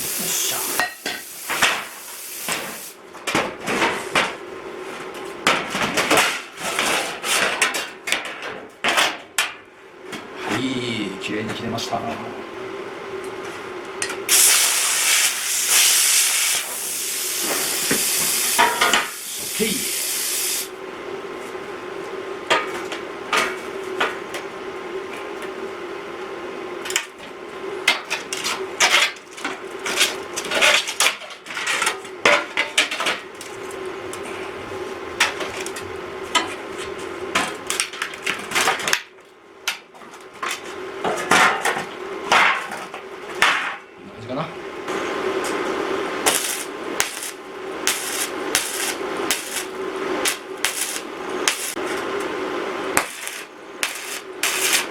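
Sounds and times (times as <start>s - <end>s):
loud hiss: 0.0s - 3.0s, 14.3s - 20.7s, 46.2s - 51.8s, 53.0s - 54.9s
steady low hum: 9.4s - 39.8s, 43.0s - 54.9s.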